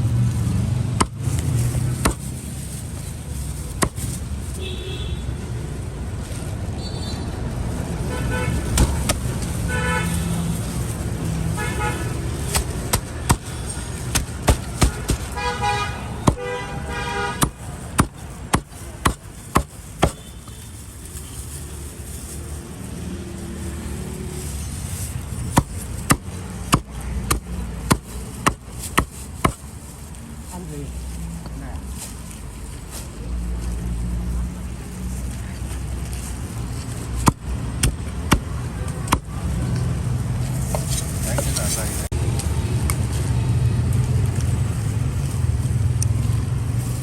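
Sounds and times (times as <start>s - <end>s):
street traffic rumbling: 0.0s - 47.0s
cleaver chopping on a board: 1.0s - 1.2s, 2.0s - 2.3s, 12.5s - 13.5s, 14.1s - 15.4s, 16.2s - 16.5s, 17.4s - 20.2s, 25.5s - 29.6s, 37.2s - 39.3s
vehicle horns honking: 4.5s - 5.4s, 6.8s - 7.4s, 8.0s - 8.8s, 9.6s - 10.5s, 11.5s - 12.5s, 14.8s - 17.6s.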